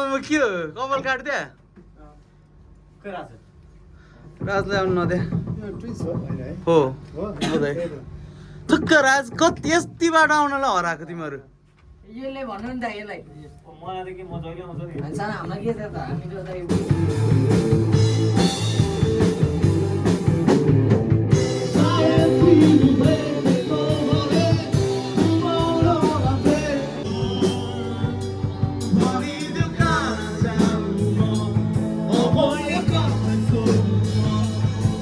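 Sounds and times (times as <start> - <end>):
steady drum beat: 2.8 - 10.9, 14.0 - 35.0
guitar: 16.4 - 35.0
rock music: 16.7 - 35.0
person singing: 21.3 - 35.0.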